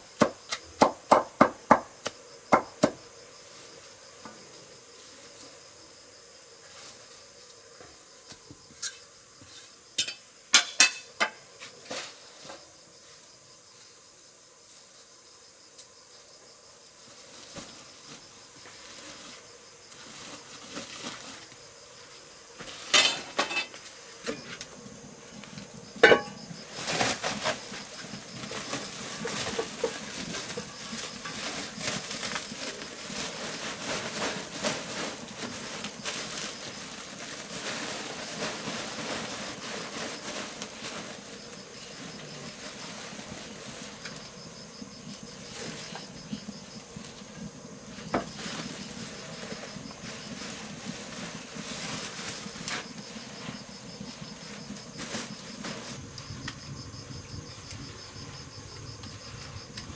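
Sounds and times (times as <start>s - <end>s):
insects chirping: 0.0s - 59.9s
objects clattering and scraping: 8.7s - 12.6s, 22.6s - 44.4s.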